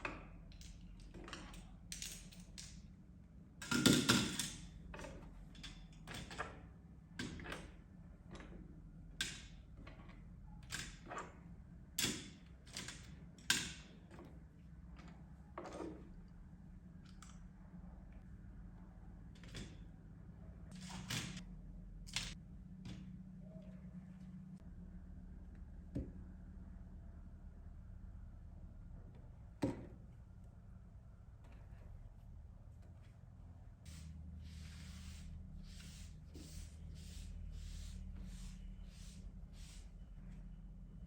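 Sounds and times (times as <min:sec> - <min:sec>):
steady low hum: 0:14.0 - 0:41.0.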